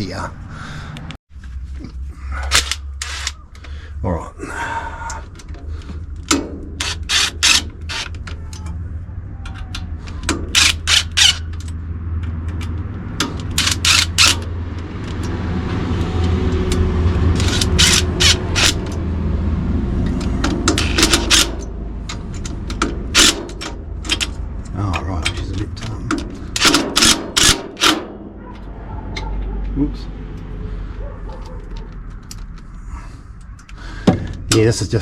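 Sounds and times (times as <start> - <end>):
sharp metallic clicks: 2.4 - 3.7, 5.3 - 8.8, 9.4 - 19.1, 20.0 - 29.7
power driver whirring: 2.5 - 3.6, 5.9 - 8.7, 10.0 - 11.8, 13.2 - 19.1, 20.1 - 21.7.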